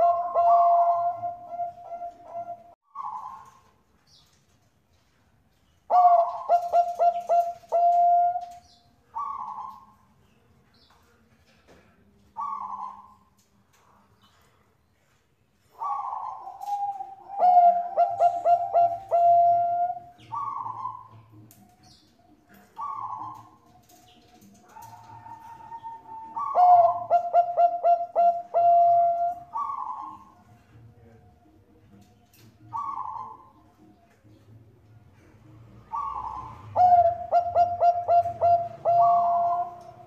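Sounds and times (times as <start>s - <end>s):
dove cooing: 0.0s - 3.7s, 5.9s - 10.1s, 12.4s - 13.3s, 15.7s - 31.1s, 32.6s - 33.8s, 35.2s - 40.0s.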